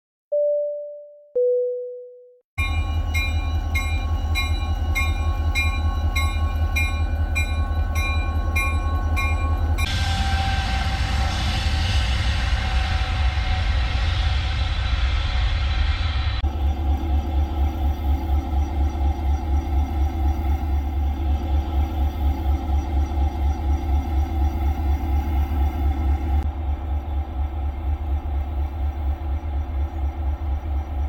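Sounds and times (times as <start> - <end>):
crossing bell ringing: 2.6 - 10.0
deep train rumble: 2.6 - 31.0
rushing noise: 9.6 - 18.4.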